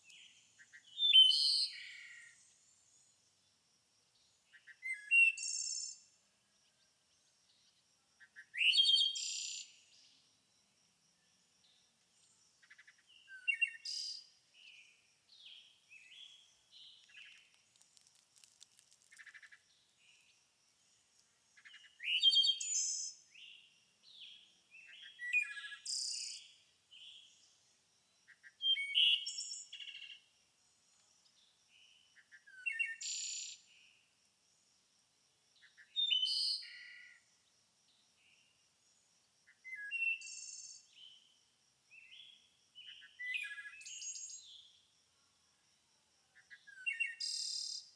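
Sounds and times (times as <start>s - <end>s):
songbirds singing chirps and trills: 0.0s - 47.9s.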